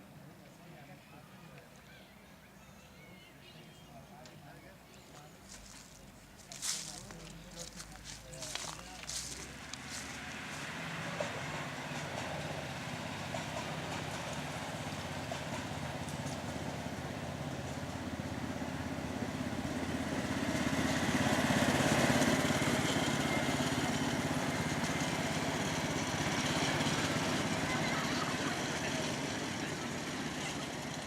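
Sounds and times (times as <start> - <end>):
miniature train running: 7.2 - 31.0.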